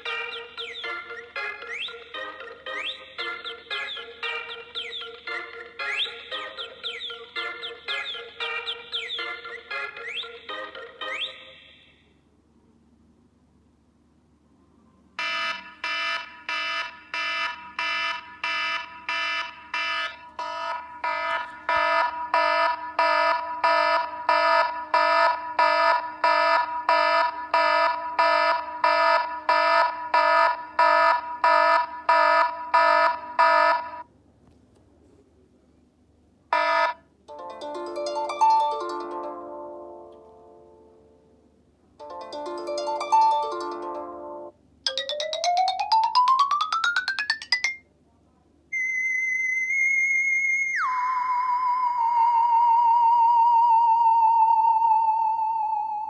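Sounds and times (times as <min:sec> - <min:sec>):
rapid alarm beeps: 0:00.0 - 0:11.8, 0:15.2 - 0:34.0.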